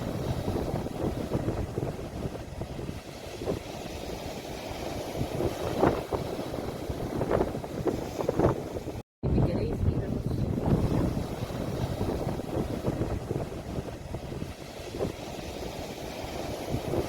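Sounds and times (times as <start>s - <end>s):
sea waves breaking: 0.0s - 17.0s
wind buffeting microphone: 0.0s - 17.0s.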